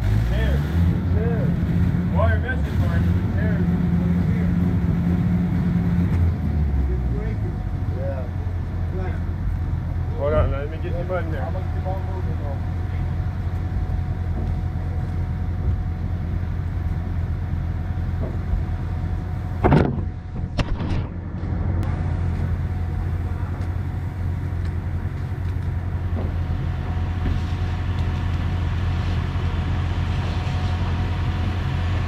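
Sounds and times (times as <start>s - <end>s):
engine running: 0.0s - 32.0s
loud knocks and scrapes: 19.6s - 21.7s.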